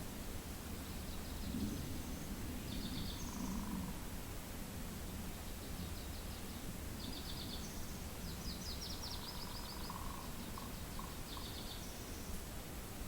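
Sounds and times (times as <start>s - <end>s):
small birds trilling: 5.6s - 12.3s.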